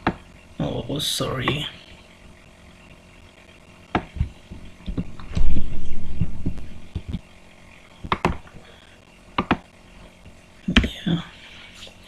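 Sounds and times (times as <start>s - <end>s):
keyboard clicks: 8.0s - 8.4s, 9.4s - 9.6s.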